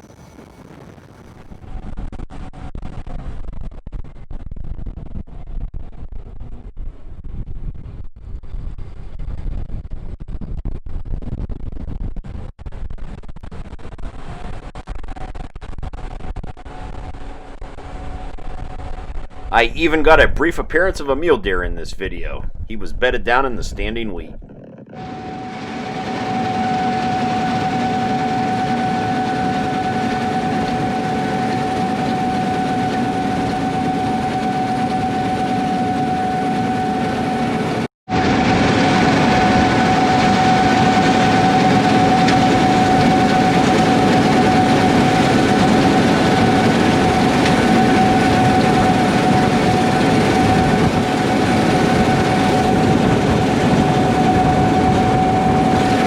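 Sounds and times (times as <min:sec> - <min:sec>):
combine harvester drone: 0:16.7 - 0:56.0
high mechanical whine: 0:22.5 - 0:56.0.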